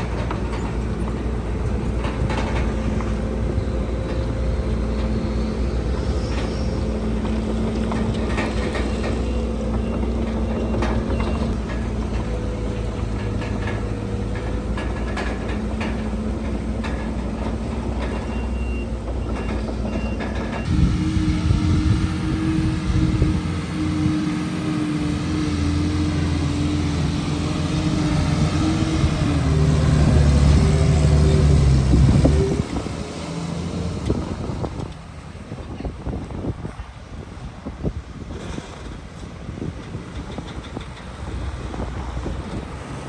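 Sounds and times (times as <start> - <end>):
machinery clanks: 0.0 - 33.2
loud engine: 0.0 - 36.2, 40.2 - 43.0
heavy machinery diesel engines: 0.0 - 43.0.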